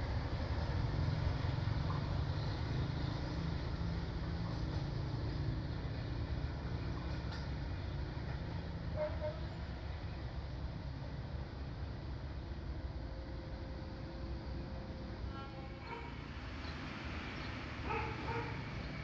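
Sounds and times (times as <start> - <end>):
low rumble of train: 0.0 - 19.0.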